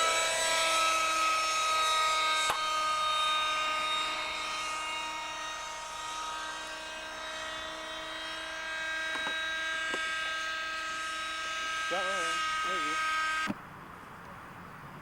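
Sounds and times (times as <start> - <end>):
model helicopter engine whine: 0.0 - 13.6.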